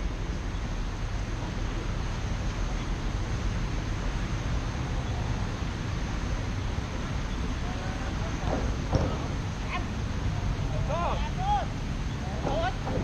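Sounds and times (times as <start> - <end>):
rain hissing: 0.0 - 12.3.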